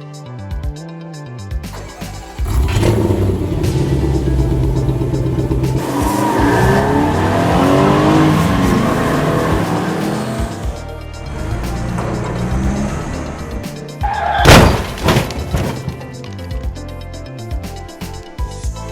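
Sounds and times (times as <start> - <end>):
background music: 0.0 - 18.9
car engine revving: 1.7 - 16.2.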